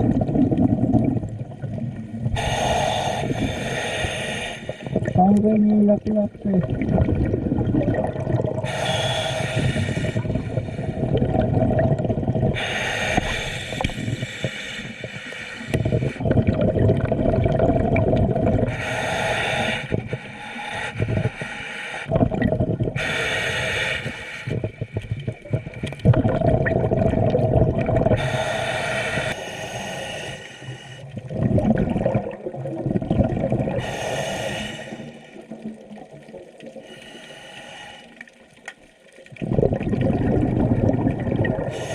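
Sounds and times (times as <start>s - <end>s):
bubbling exhalation underwater: 0.0s - 2.6s, 4.8s - 8.8s, 10.0s - 12.7s, 15.7s - 18.8s, 22.1s - 23.2s, 24.6s - 28.3s, 31.1s - 33.9s, 39.3s - 41.9s
hissing regulator inhalations: 2.3s - 5.1s, 8.6s - 11.0s, 12.6s - 16.2s, 18.7s - 22.2s, 23.0s - 25.0s, 28.2s - 31.2s, 33.8s - 35.4s, 36.8s - 38.3s, 41.7s - 41.9s.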